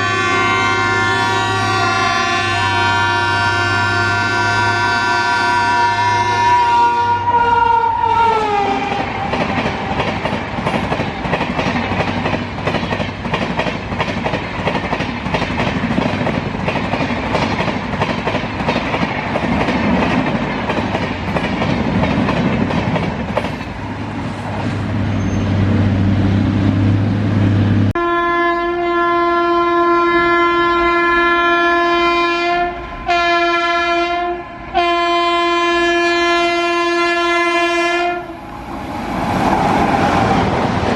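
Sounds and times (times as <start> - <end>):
train horn: 0.0 - 9.9, 28.0 - 38.4.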